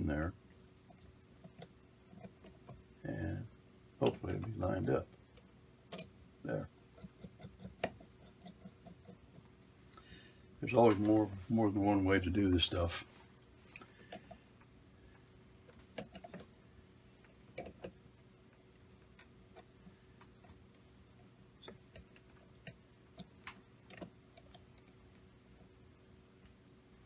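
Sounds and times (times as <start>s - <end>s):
faint steady hum: 0.0s - 27.0s
clicks and taps of metal parts: 5.3s - 6.2s.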